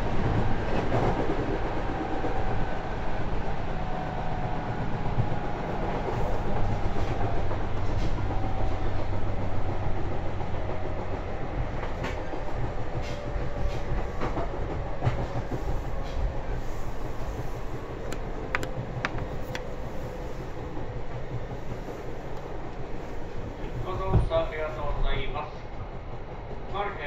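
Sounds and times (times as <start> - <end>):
train wheels rumbling on track: 0.0 - 27.0.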